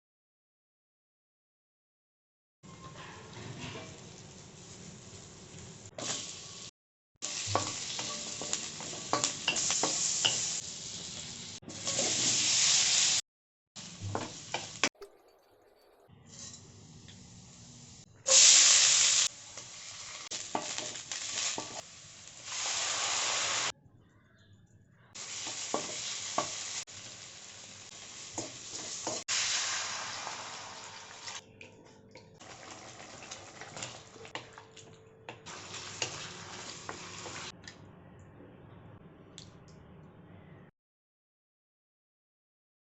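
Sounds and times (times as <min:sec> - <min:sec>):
food sizzling in a pan: 0:03.8 - 0:13.2, 0:13.8 - 0:14.9, 0:16.3 - 0:23.7, 0:25.2 - 0:31.4, 0:32.4 - 0:34.6, 0:35.4 - 0:37.5
utensil stirring against pan: 0:35.5 - 0:37.5.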